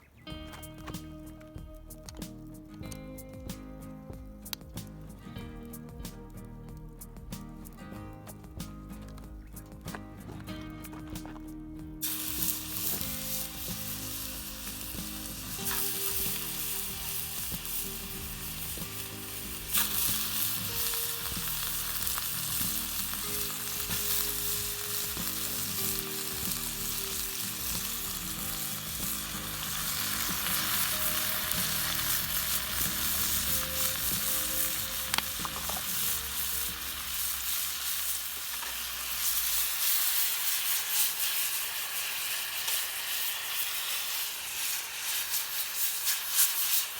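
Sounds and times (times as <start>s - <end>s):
soft background music: 0.2s - 40.7s
food sizzling in a pan: 12.0s - 46.9s.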